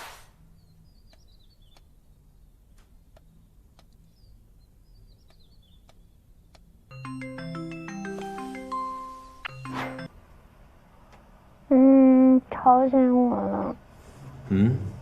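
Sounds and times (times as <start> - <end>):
faint birdsong chirping: 0.2 - 9.5
light ticks: 1.0 - 1.9, 2.7 - 4.3, 5.1 - 6.7
marimba-like melody: 6.9 - 10.1.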